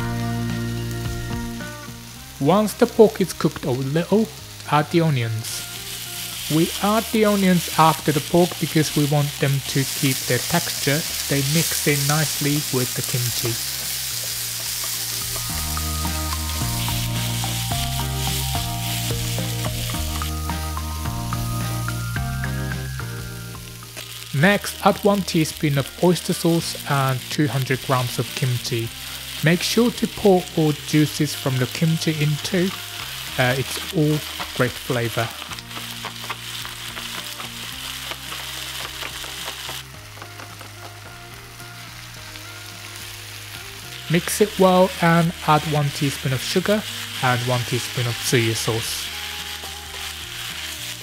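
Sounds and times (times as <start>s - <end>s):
background music with held chords: 0.0s - 12.6s, 13.4s - 51.0s
meat and onion sizzling in a pan: 0.0s - 51.0s
chopsticks stirring in a pan: 24.0s - 51.0s.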